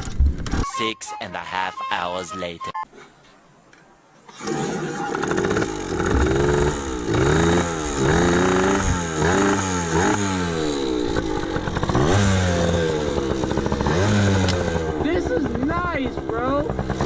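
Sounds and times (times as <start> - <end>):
motorcycle engine revving: 4.3 - 17.0.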